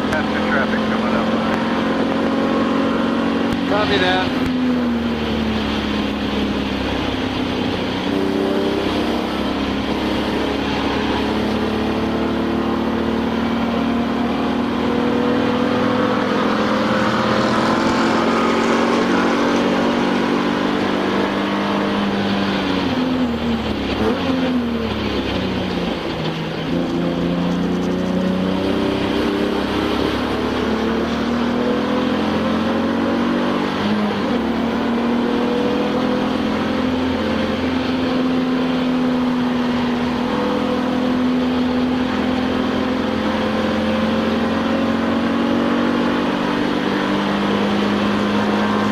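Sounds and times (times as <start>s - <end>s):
race car engine from inside cabin: 0.0s - 48.9s.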